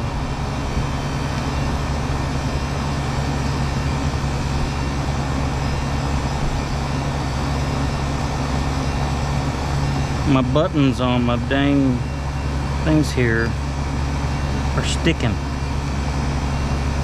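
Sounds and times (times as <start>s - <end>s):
compressor humming: 0.0s - 17.0s
condenser fan drone: 0.0s - 17.0s.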